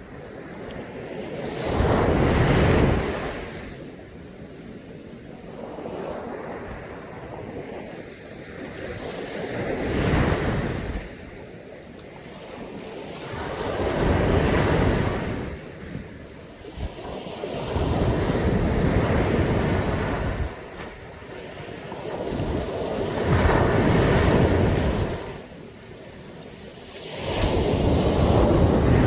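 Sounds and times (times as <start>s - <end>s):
surf washing onto beach: 5.0s - 29.0s
wind buffeting microphone: 12.4s - 29.0s.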